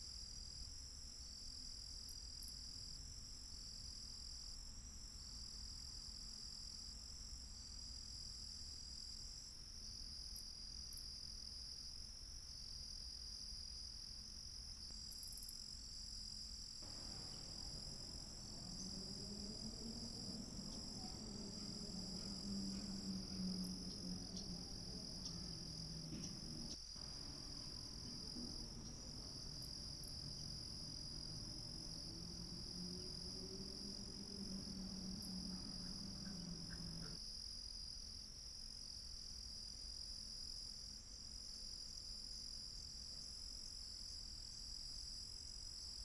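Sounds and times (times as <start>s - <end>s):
insects trilling: 16.8s - 37.2s
low droning hum: 16.8s - 37.2s.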